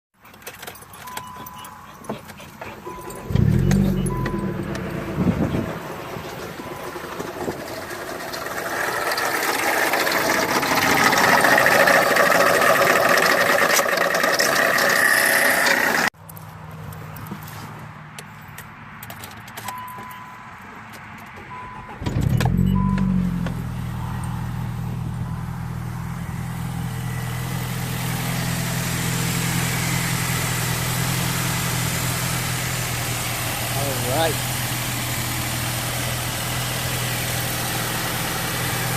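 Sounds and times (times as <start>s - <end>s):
car engine starting and idling: 0.2s - 16.2s, 21.0s - 38.9s
keys clicking: 0.3s - 3.9s
dashboard warning chime beeping: 0.7s - 5.6s, 19.6s - 20.4s, 21.5s - 24.0s
electronic chime beeps: 2.9s - 4.7s.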